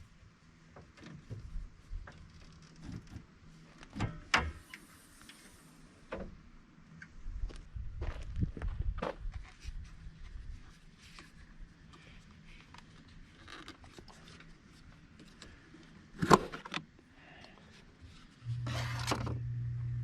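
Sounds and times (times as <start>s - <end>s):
light clicks and scrapes: 9.4s - 16.0s.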